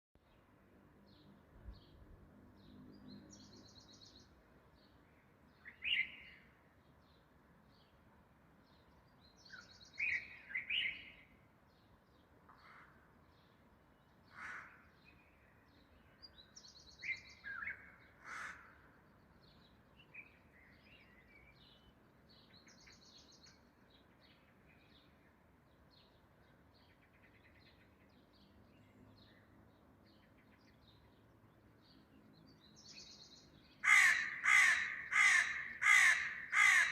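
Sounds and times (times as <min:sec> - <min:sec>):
small birds chirping: 0:13.3 - 0:36.9
crow cawing: 0:14.3 - 0:14.8, 0:18.2 - 0:18.9, 0:33.8 - 0:36.9.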